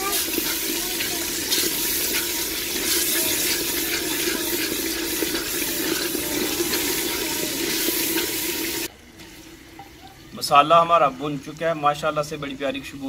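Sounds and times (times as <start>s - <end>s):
masala sizzling and bubbling: 0.0s - 13.0s.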